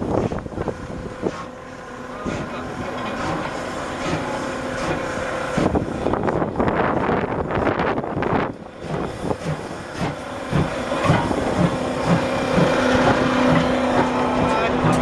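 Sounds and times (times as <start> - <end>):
steam locomotive exhaust chuffing: 0.0 - 15.0
steam hissing: 2.2 - 6.2, 8.7 - 15.0.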